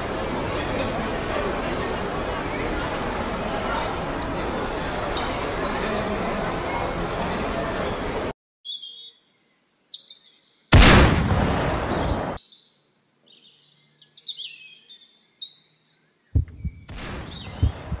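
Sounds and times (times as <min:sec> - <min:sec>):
rifle shot: 0:10.7 - 0:12.4
birds chirping: 0:11.4 - 0:18.0.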